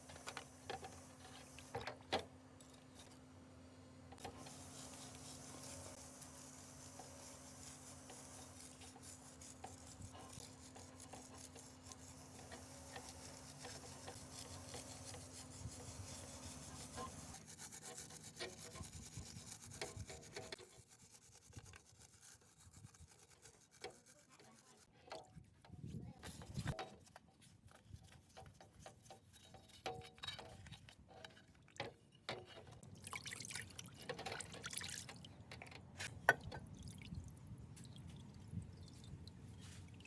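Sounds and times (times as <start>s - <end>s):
rubbing and scraping on engine part: 4.2s - 32.8s.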